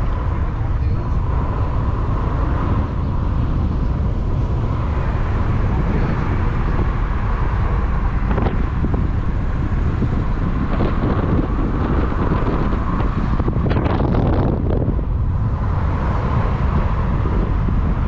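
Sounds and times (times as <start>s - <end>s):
moving vehicle rumble: 0.0s - 18.0s
wind noise on microphone: 0.0s - 18.0s.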